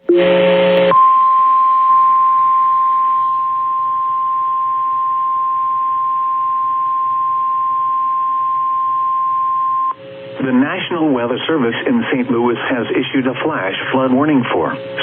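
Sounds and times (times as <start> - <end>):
faint radio hiss: 10.0 - 15.0.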